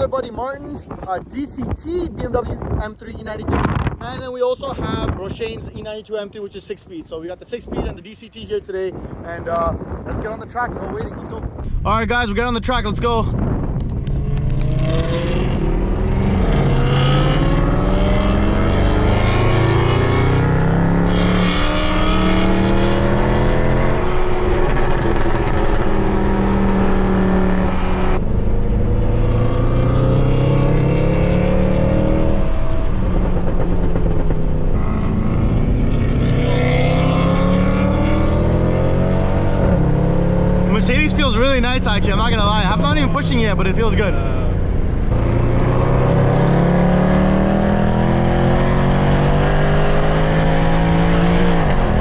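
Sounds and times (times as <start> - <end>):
exhaust note dropping at upshifts: 11.7 - 52.0
car engine accelerating hard: 14.0 - 52.0.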